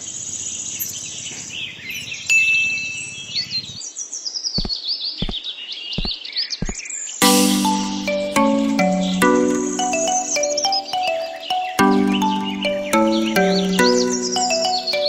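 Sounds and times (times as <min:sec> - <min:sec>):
birds chirping: 0:07.4 - 0:15.0.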